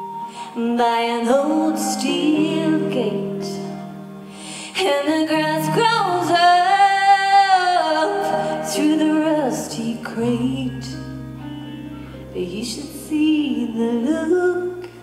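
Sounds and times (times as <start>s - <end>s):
person singing slow song: 0.0s - 11.2s
instrumental backing: 0.0s - 15.0s.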